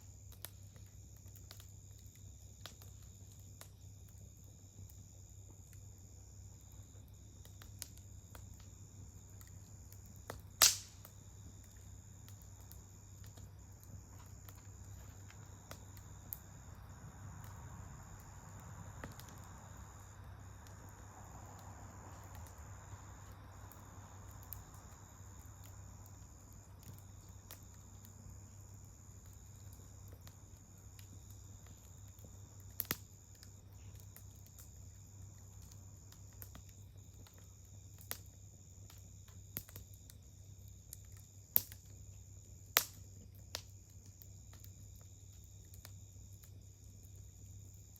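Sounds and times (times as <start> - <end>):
campfire crackling: 0.0 - 47.9
sharp pops of fire: 0.0 - 47.9.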